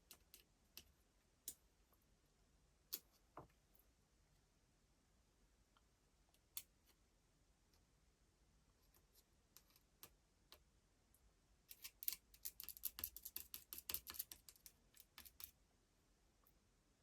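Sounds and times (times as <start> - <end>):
small hard parts clicking: 11.7 - 15.5.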